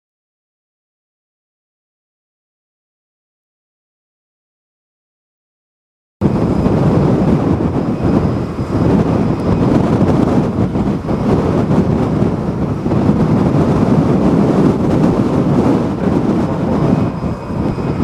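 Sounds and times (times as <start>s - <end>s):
gusty wind buffeting microphone: 6.2s - 18.0s.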